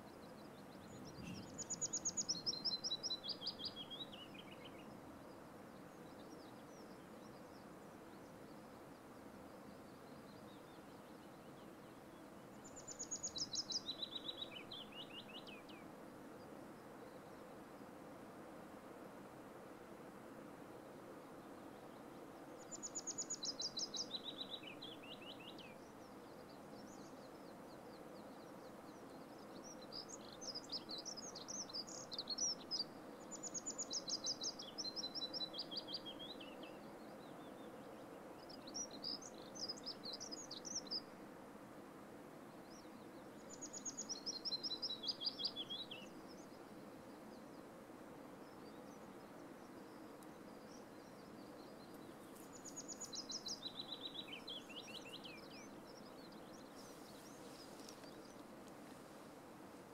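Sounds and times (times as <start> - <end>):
songbird singing: 0.0 - 17.9, 21.1 - 41.3, 42.5 - 59.9
faint hiss: 0.0 - 59.9.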